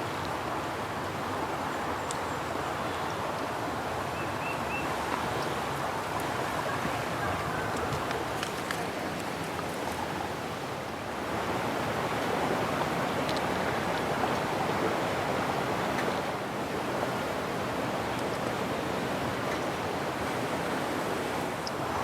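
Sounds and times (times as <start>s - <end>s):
water washing against shore: 11.1s - 22.0s.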